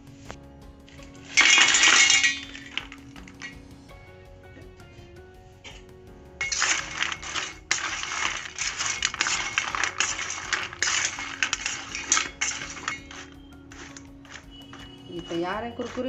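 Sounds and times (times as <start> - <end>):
snacks rattling in steel bowl: 1.0 - 3.5, 6.4 - 16.0.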